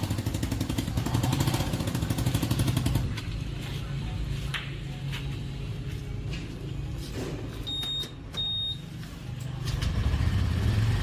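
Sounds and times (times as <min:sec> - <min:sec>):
small motorcycle engine revving: 0:00.0 - 0:03.0, 0:09.8 - 0:11.0
short high beeps: 0:07.6 - 0:08.9.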